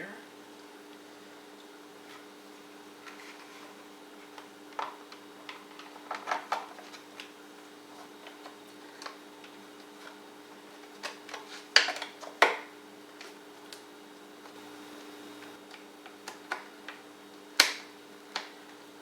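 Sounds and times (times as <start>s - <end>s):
steady low hum: 14.2s - 15.8s.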